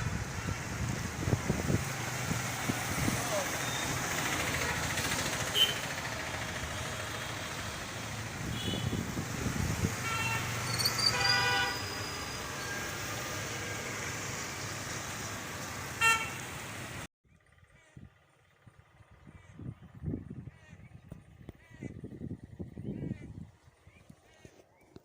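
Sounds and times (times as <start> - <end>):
road traffic noise: 0.0 - 25.0
vehicle horns honking: 3.6 - 6.0, 8.4 - 9.2, 9.8 - 12.8, 16.0 - 16.5.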